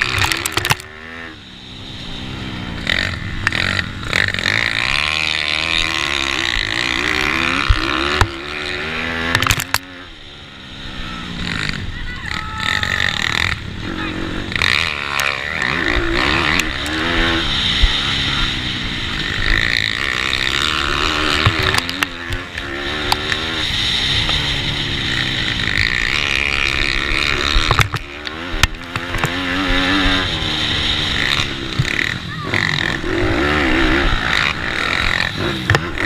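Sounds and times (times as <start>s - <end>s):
other pitbike engines: 0.0s - 36.0s
pitbike engine revving: 0.0s - 36.0s
sharp clicks: 9.3s - 9.9s, 21.3s - 23.5s.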